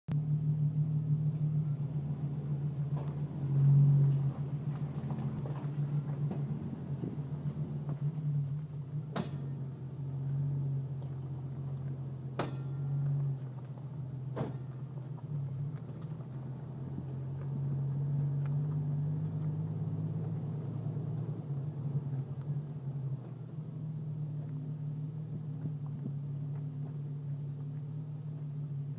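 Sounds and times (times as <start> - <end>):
car engine low hum: 0.0 - 28.9
sharp metallic pops: 9.1 - 9.6.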